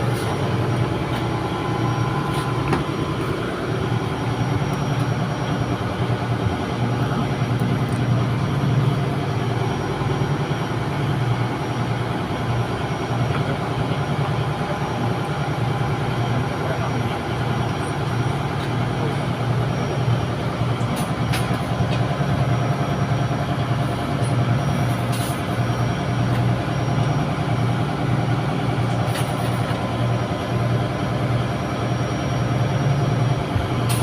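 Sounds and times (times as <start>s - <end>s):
ship machinery drone: 0.0s - 34.0s.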